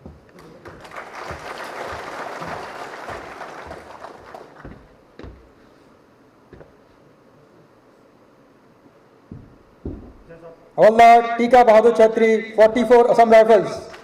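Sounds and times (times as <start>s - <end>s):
audience applauding: 0.4s - 4.9s.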